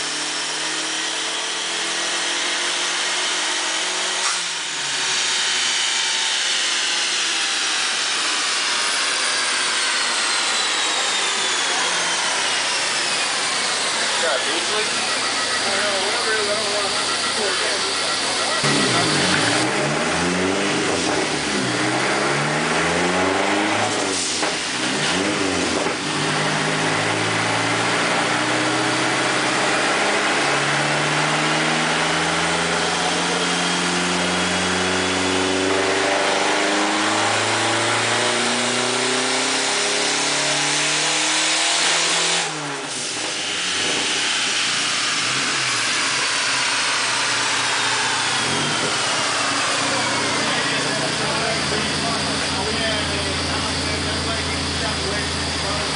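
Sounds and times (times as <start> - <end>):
car engine at full throttle: 0.0 - 55.9
high turbo whistle: 4.1 - 24.7, 41.8 - 55.8
falling whine: 4.5 - 29.6, 42.4 - 55.9.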